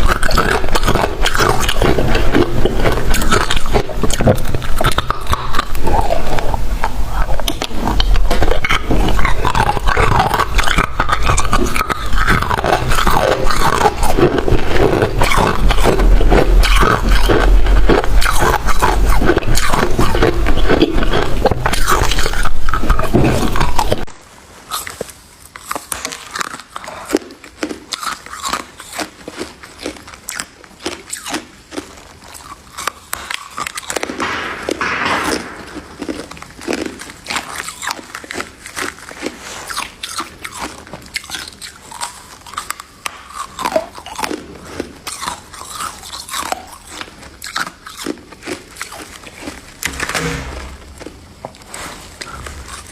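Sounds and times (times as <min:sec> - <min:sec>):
chewing crunchy ice: 0:00.0 - 0:50.0, 0:50.9 - 0:52.9.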